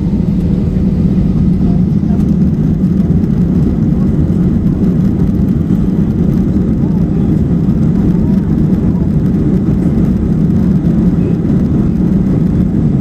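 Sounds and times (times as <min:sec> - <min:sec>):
jet engines rumbling in cabin: 0:00.0 - 0:13.0.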